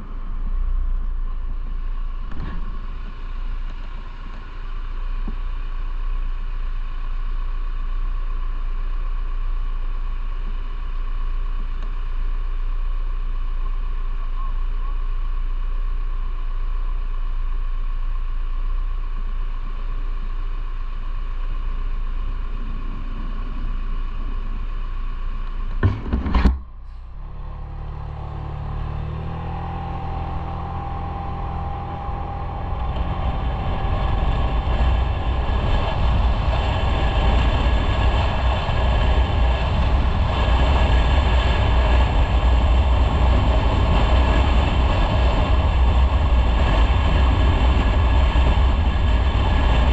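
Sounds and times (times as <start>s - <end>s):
motorcycle engine: 0.0s - 49.9s
wind and road noise: 0.0s - 49.9s
loud double knock: 25.8s - 26.7s.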